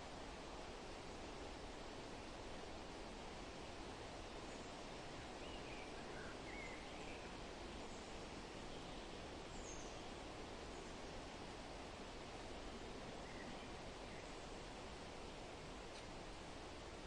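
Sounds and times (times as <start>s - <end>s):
wind rustling leaves: 0.0s - 17.0s
faint bird chirps: 4.2s - 11.3s, 12.5s - 14.6s.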